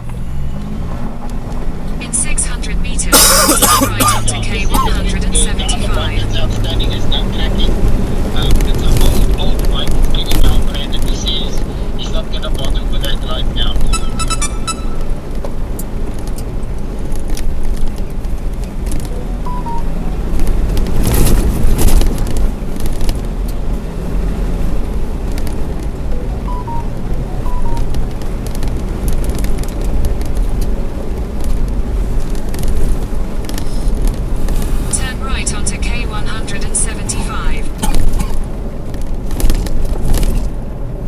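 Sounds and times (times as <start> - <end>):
car engine and road rumble: 0.0 - 41.0
two-note electronic beep: 13.9 - 15.1, 19.1 - 20.7, 26.1 - 28.1.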